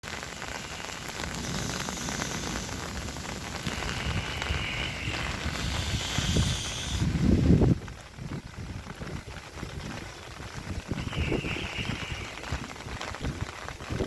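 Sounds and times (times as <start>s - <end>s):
hailstones clattering: 0.0s - 14.0s.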